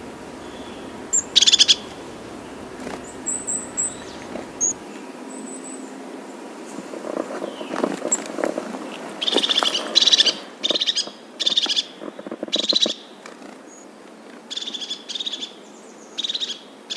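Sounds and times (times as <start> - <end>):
bird trilling call: 0.0 - 4.8
lower pulsing call: 0.0 - 4.8.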